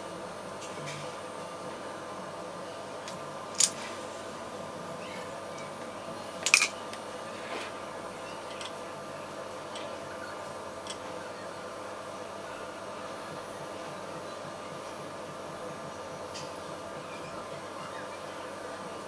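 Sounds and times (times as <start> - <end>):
steady background hum: 0.0 - 19.0
clinks of kitchen utensils: 6.4 - 6.8.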